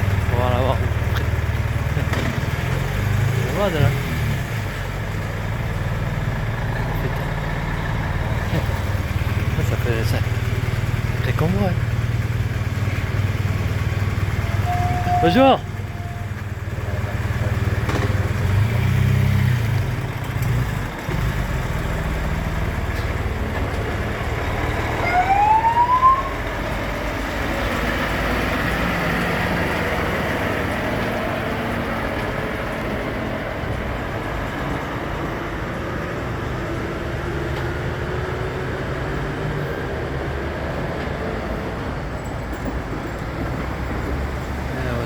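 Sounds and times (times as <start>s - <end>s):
heavy trucks passing: 0.0s - 45.0s
rising siren-like tone: 24.7s - 26.7s.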